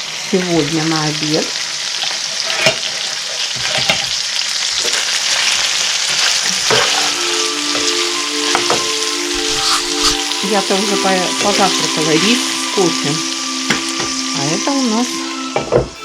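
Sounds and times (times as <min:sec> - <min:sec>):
food sizzling in a pan: 0:00.0 - 0:16.0
steady multi-pitch tone: 0:06.9 - 0:16.0.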